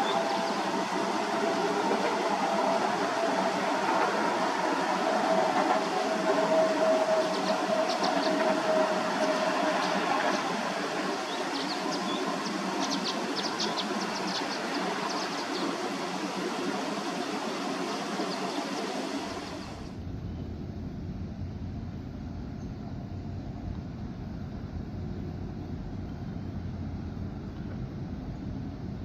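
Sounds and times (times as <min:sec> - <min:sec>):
freight train wheels on rails: 0:00.0 - 0:20.0
low rumble: 0:19.9 - 0:29.0.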